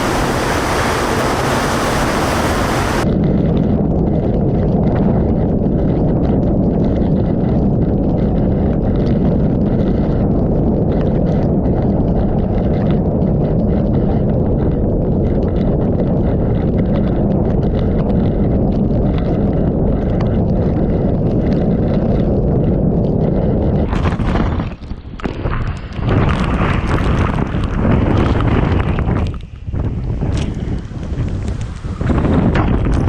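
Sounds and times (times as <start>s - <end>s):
rain and spray spattering: 0.0s - 3.1s, 23.1s - 33.0s
strong wind buffeting microphone: 0.0s - 33.0s.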